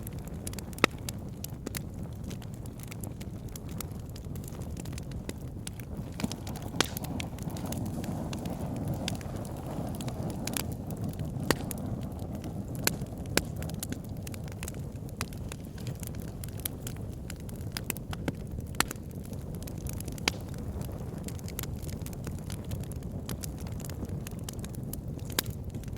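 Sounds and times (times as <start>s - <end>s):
wood fire crackling: 0.0s - 25.9s.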